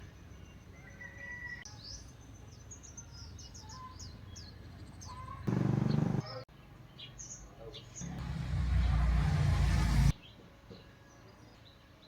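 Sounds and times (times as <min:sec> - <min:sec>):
small birds chirping: 0:00.0 - 0:09.0
loud low buzz: 0:05.5 - 0:06.2, 0:08.0 - 0:10.2.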